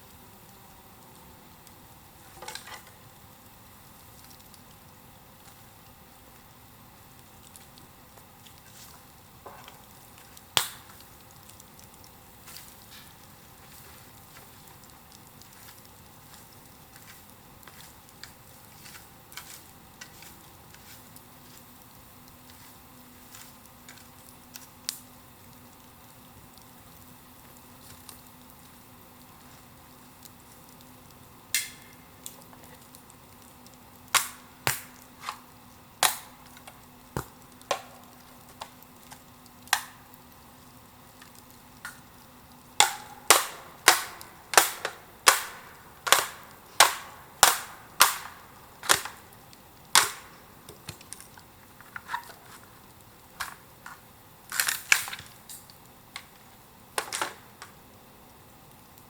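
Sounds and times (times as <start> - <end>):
bamboo cracking: 9.4 - 21.6, 31.5 - 40.5, 42.8 - 57.8.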